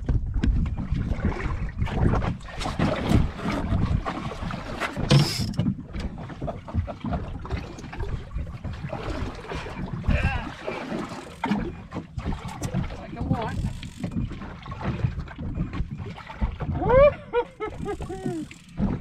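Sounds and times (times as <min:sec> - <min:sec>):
wind buffeting microphone: 0:00.0 - 0:10.8
water slapping boat hull: 0:00.0 - 0:19.0.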